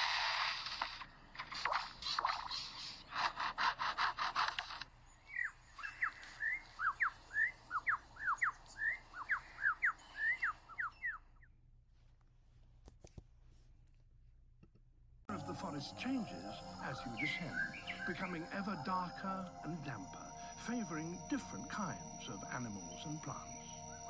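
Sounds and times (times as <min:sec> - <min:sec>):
sharp whistled bird notes: 0:05.3 - 0:11.2, 0:15.6 - 0:24.0.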